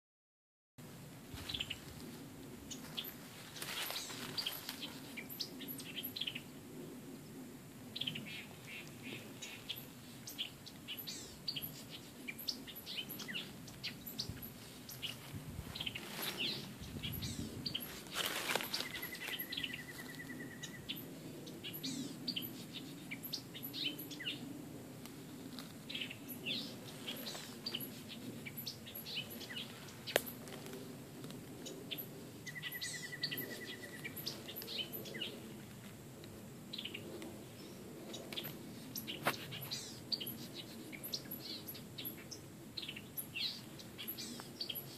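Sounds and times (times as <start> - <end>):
birds chirping: 8.0 - 24.5, 25.9 - 30.6, 31.6 - 35.5, 36.7 - 44.9.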